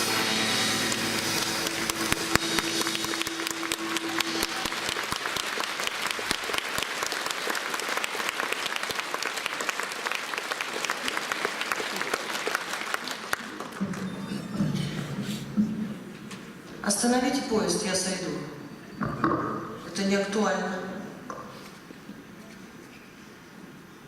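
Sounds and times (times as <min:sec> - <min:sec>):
band playing held chord: 0:00.0 - 0:06.8
audience applauding: 0:00.0 - 0:15.0.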